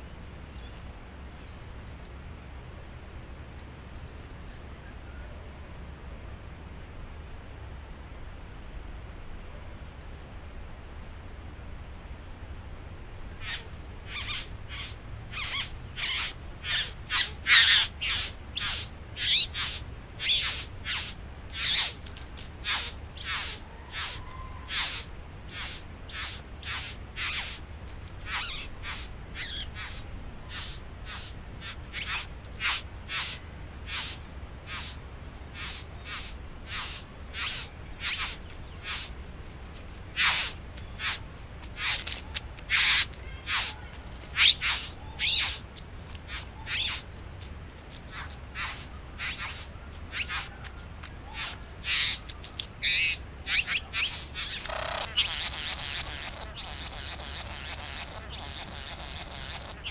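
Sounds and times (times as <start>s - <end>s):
bird scratchy calls: 13.4s - 39.2s, 39.8s - 59.9s.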